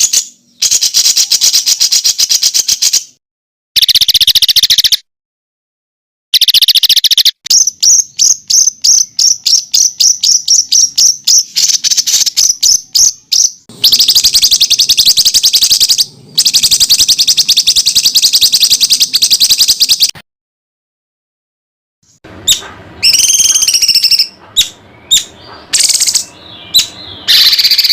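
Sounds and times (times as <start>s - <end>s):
songbird trilling song: 0.0s - 3.2s, 3.8s - 5.0s, 6.4s - 20.2s, 22.4s - 27.9s.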